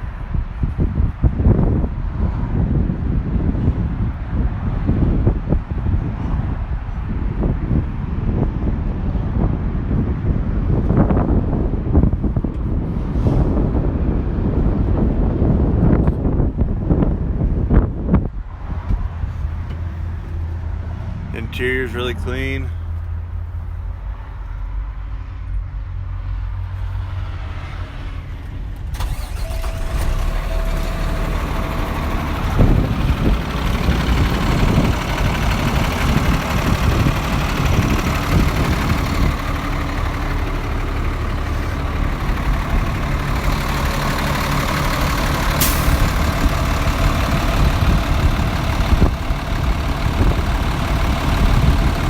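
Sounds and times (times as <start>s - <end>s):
diesel engine idling: 19.0s - 24.7s, 28.9s - 52.0s
diesel engine cranking: 28.6s - 52.0s.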